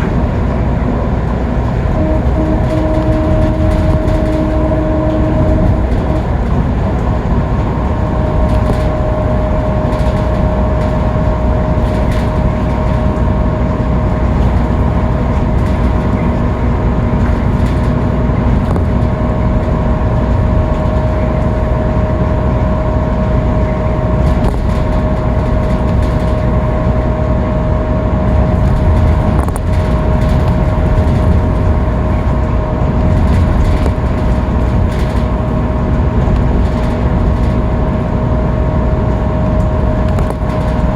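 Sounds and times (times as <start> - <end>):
high whine: 0.0 - 36.5
bus engine cruising: 0.0 - 40.9
road noise: 0.0 - 40.9.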